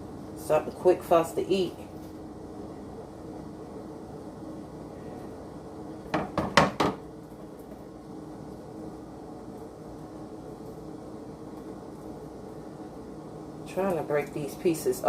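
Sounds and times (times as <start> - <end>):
steady low hum: 0.0 - 15.0
kitchen items knocking: 6.1 - 7.0.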